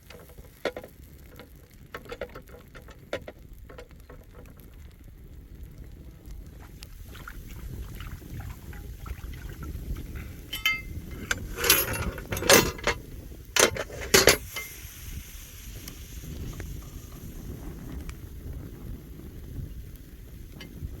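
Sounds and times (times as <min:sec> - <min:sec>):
low steady background rumble: 0:00.0 - 0:21.0
metal cookware clinking: 0:10.5 - 0:13.0, 0:13.6 - 0:14.8.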